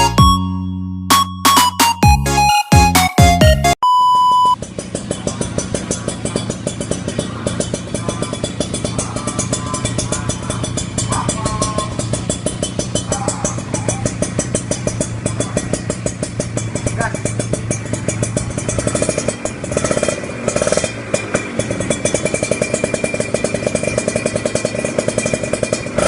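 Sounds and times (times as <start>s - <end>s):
short electronic beep: 0.0s - 4.6s
motorcycle engine idling: 4.6s - 26.0s.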